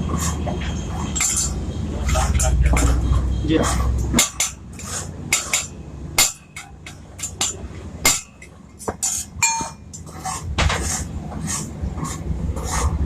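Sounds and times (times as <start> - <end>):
metal knocks and clinks: 0.5 - 10.9
ringing metal clink: 9.0 - 10.0.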